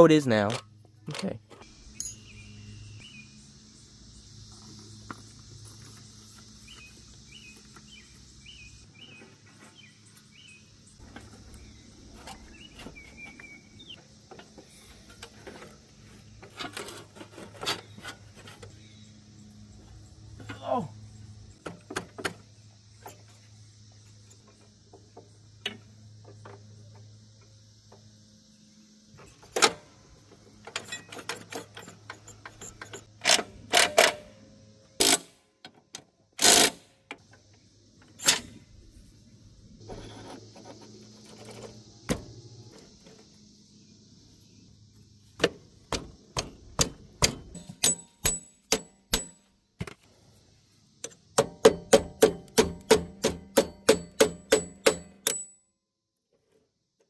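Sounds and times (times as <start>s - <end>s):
steady low hum: 36.2s - 51.4s
tools knocking and clicking on metal: 45.9s - 49.4s, 51.0s - 55.6s.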